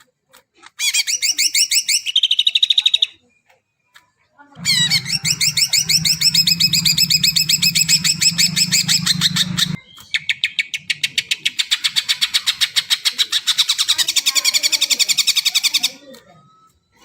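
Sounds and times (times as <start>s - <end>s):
low hum: 4.6s - 9.9s
bird singing rapid trill: 4.6s - 16.0s.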